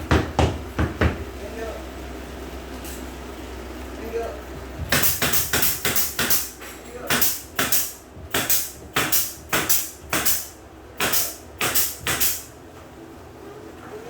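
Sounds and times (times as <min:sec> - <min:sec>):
hammer striking wood: 0:00.0 - 0:01.3, 0:04.8 - 0:12.5.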